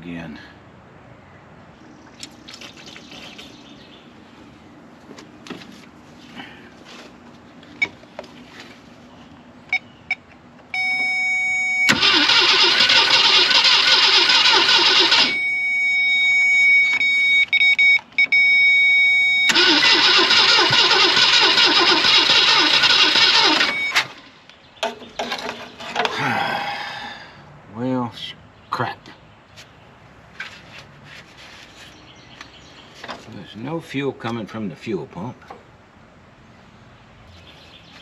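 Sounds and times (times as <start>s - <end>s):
starter cranking engine: 11.9s - 15.4s, 19.5s - 24.2s.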